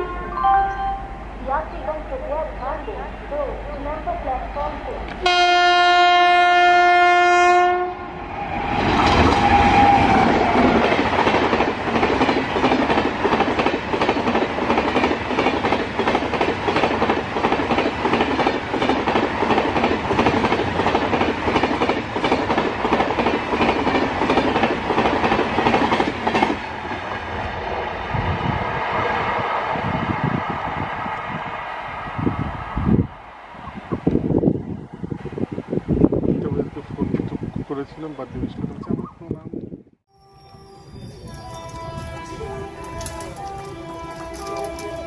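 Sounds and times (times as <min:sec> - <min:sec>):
locomotive horn chord: 0:00.0 - 0:01.4, 0:04.6 - 0:08.2, 0:41.3 - 0:45.0.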